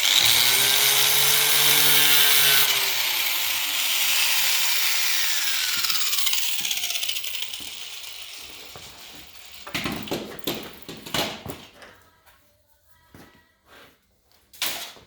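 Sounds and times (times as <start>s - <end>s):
angle grinder spinning down: 0.0s - 10.1s.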